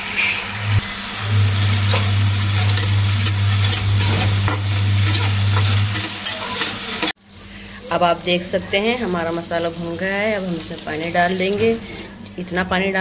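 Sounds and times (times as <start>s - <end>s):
masala sizzling in hot oil: 0.0s - 12.3s
steady low hum: 0.6s - 6.0s
metal spatula scraping pan: 1.3s - 7.2s.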